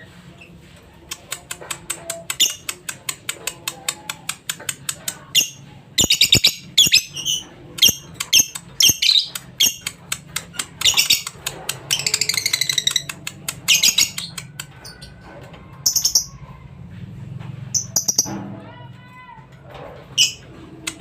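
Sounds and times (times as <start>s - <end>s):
lovebird chattering: 1.1s - 14.5s, 17.8s - 18.3s.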